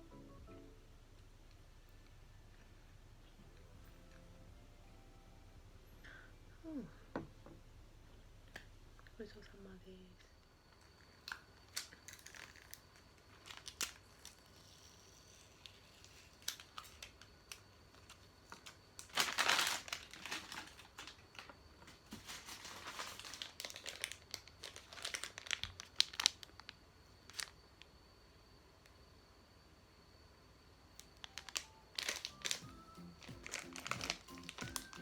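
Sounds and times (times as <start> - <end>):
packaging crinkling and tearing: 11.3 - 14.7, 15.6 - 17.4, 18.0 - 27.6, 31.2 - 35.0.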